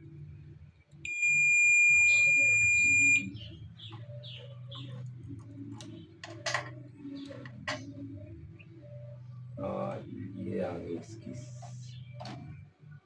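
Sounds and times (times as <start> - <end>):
multimeter continuity beep: 1.1 - 3.6
handling noises: 3.9 - 7.9.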